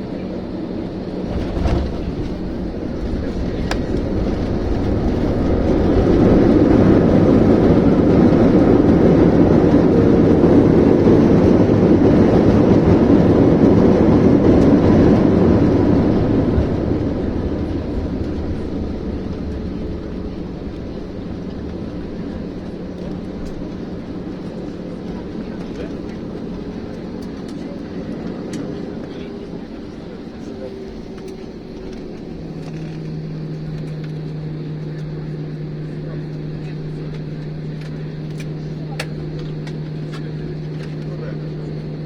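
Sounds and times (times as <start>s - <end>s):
jet engines in reverse thrust: 0.0s - 42.0s
thump: 1.3s - 3.8s.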